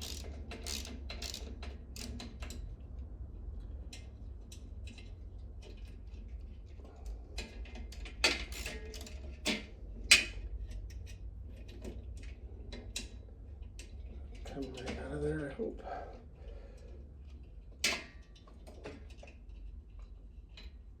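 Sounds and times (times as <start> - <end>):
small metal clicks: 0.0 - 2.6, 8.4 - 9.1.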